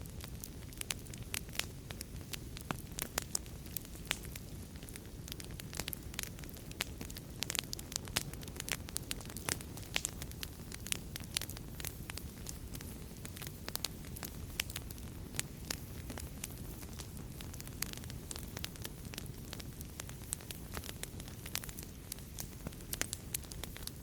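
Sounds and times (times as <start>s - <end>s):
fire crackling and popping: 0.0s - 24.0s
low rumble of burning: 0.0s - 24.0s.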